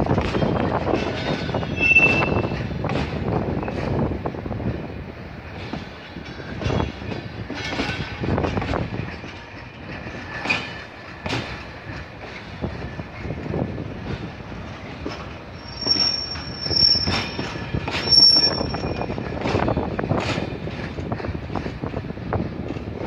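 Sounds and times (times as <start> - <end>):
high wheel squeal: 1.4 - 2.6, 15.5 - 19.3.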